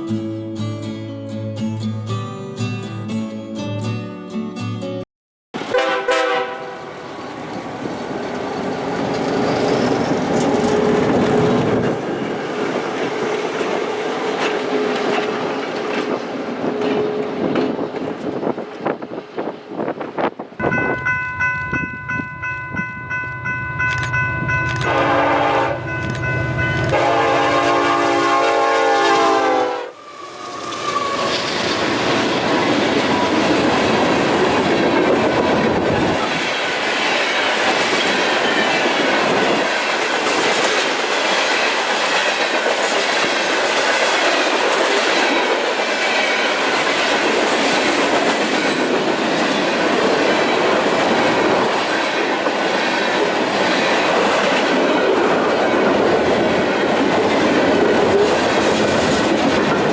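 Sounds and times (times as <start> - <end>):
freight train wheels clattering: 30.8 - 59.9.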